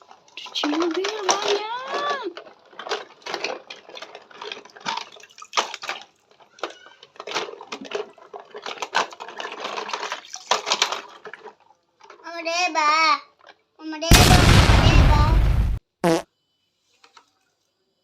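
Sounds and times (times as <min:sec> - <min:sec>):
water splashing and trickling: 0:00.0 - 0:06.6, 0:07.2 - 0:12.1.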